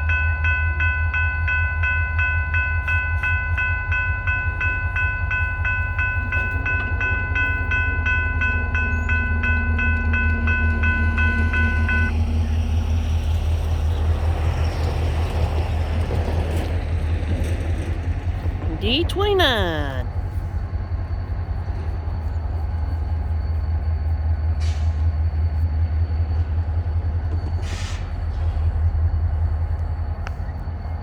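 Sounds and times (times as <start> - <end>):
crossing bell ringing: 0.0 - 12.1
diesel locomotive rumbling: 2.9 - 18.8.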